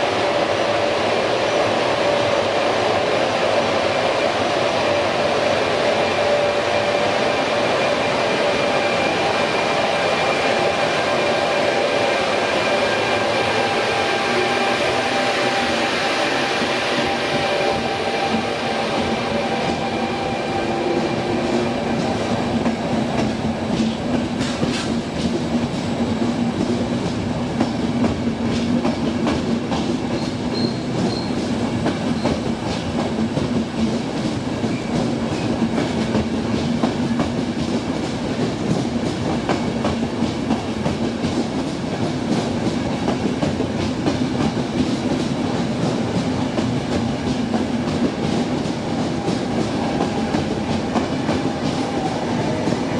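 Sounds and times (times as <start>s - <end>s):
train rolling on rails: 0.0s - 52.9s.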